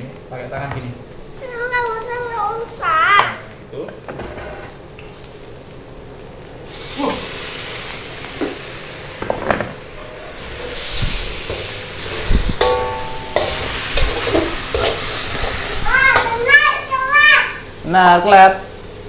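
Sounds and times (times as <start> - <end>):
spice paste sizzling: 4.7 - 19.0
metal spatula scraping wok: 10.1 - 16.3.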